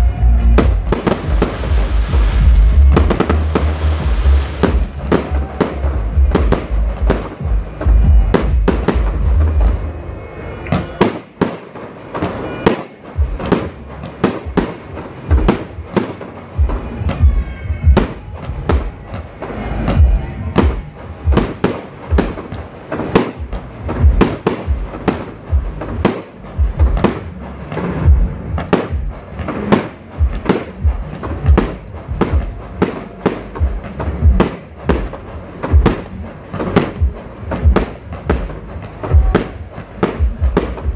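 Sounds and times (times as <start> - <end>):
deep rumble: 0.0 - 10.0.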